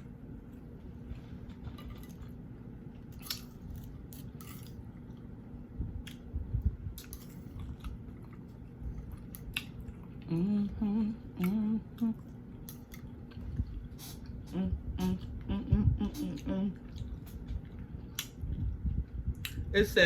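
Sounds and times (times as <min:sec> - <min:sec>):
person humming a tune: 0:10.2 - 0:12.2, 0:14.5 - 0:16.8.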